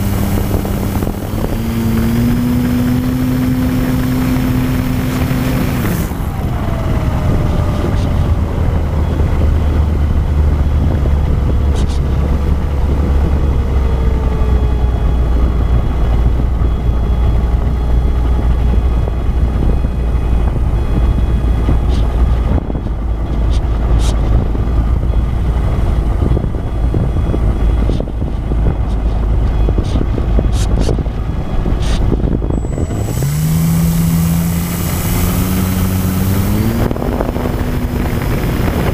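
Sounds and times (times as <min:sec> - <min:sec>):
wind rushing: 0:17.6 - 0:38.9
electric motor whirring: 0:31.6 - 0:38.9.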